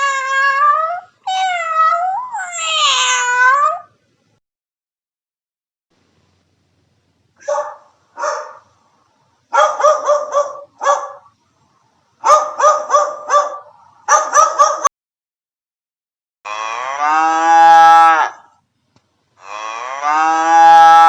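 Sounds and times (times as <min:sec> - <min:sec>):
dog barking: 0:07.4 - 0:08.7, 0:09.5 - 0:11.3, 0:12.2 - 0:14.9.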